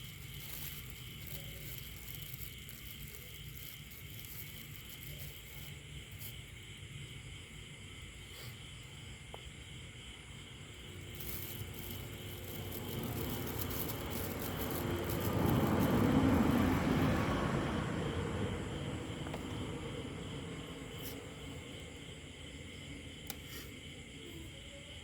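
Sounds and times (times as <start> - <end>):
vehicle passing by: 11.0 - 21.7.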